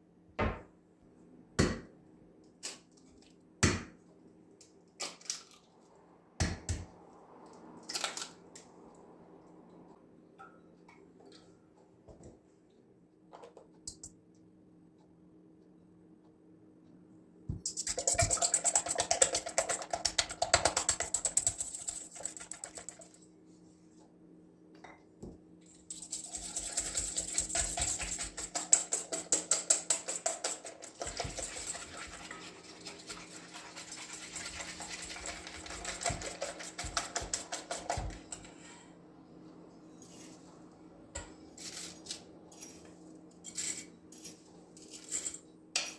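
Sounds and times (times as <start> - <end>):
rapid clicking strokes: 17.7 - 23.2, 25.9 - 38.0.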